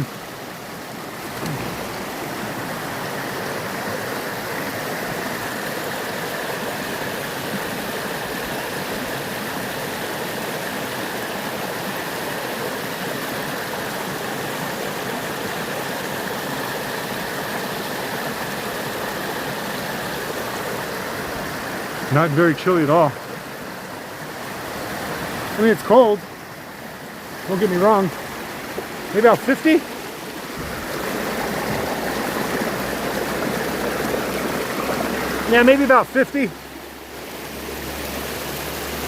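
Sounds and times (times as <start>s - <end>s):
stream flowing over rocks: 0.0s - 39.0s.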